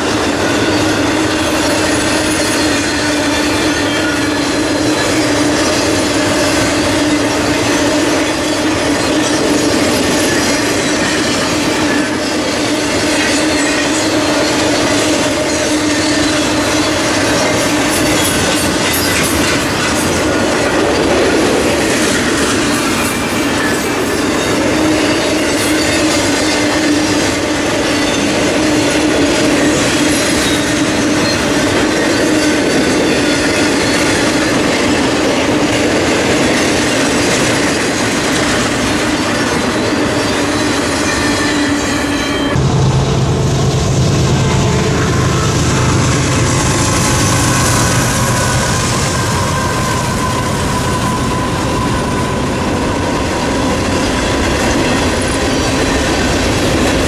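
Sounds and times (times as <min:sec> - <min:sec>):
freight train wheels clattering: 0:00.0 - 0:57.0
steady hum: 0:42.6 - 0:47.3.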